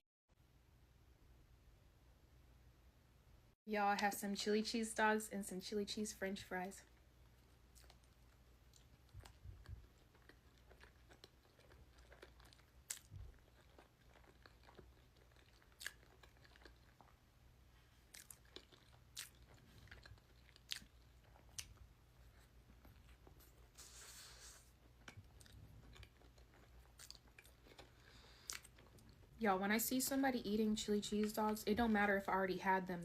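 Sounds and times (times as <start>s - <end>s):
close-miked chewing: 6.8s - 32.3s.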